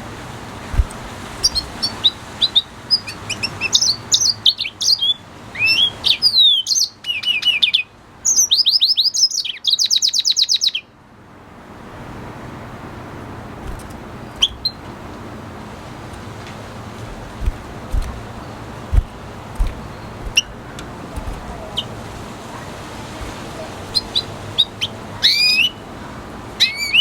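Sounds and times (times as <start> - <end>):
single bird chirps: 0.8 - 2.1, 13.7 - 14.9, 18.9 - 21.9
bird singing twittering trill: 0.8 - 10.9, 13.7 - 14.9, 17.1 - 22.0, 23.2 - 25.9, 26.6 - 27.0.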